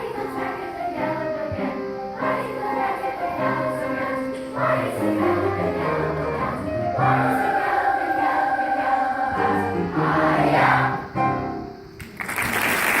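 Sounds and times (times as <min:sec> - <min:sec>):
choir singing: 0:00.0 - 0:11.7
applause: 0:12.0 - 0:13.0.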